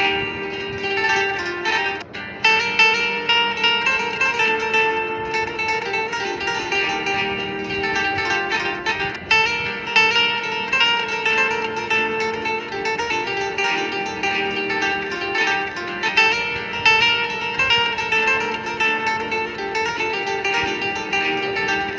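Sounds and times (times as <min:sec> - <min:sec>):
fast plucked acoustic guitar: 0:00.0 - 0:21.9.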